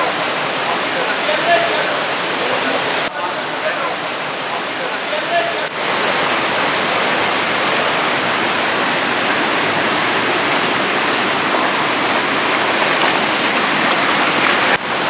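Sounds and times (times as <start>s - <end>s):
waterfall pouring into pool: 5.6s - 15.0s.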